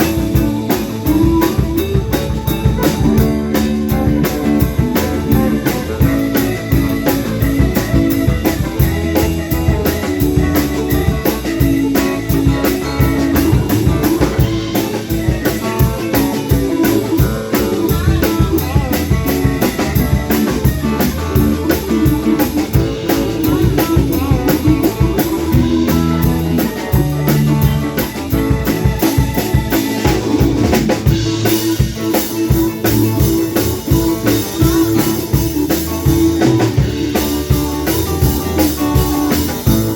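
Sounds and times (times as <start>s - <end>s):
drum kit beat: 0.0s - 39.9s
guitar playing: 0.0s - 39.9s.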